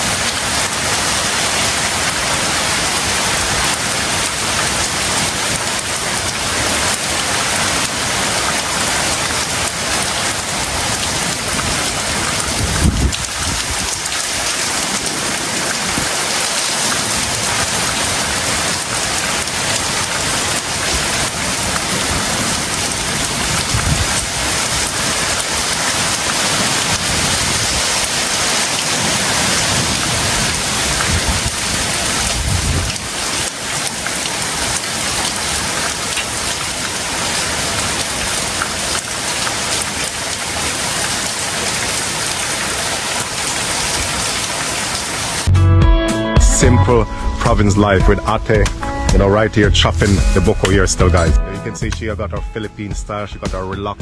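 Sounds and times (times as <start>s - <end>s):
heavy rain falling: 0.0s - 45.5s
low thump: 45.8s - 52.1s.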